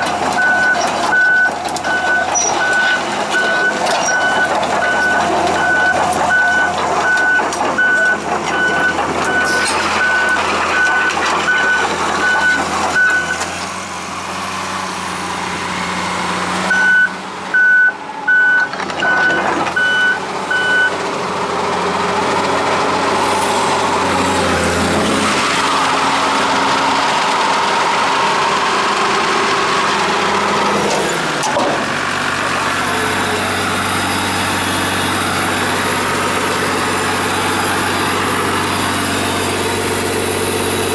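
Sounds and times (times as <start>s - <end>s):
excavator engine and hydraulics: 0.0s - 40.9s
travel alarm beeping: 0.4s - 13.4s, 16.7s - 21.0s.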